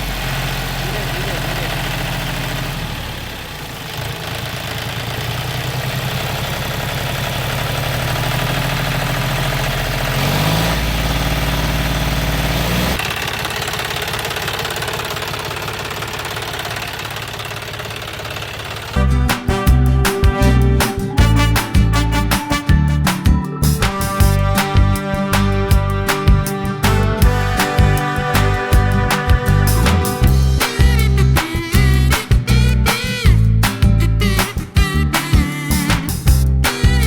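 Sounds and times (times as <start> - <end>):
small engine running: 0.0 - 19.2.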